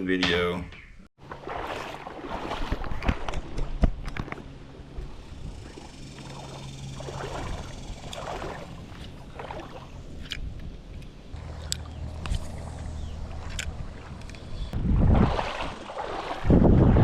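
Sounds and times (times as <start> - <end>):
low hum: 1.2 - 17.0
water sloshing and splashing: 1.2 - 17.0.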